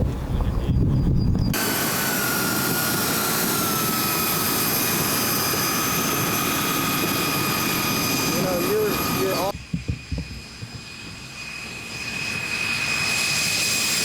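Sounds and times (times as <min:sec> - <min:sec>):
model jet engines running: 0:01.5 - 0:14.0.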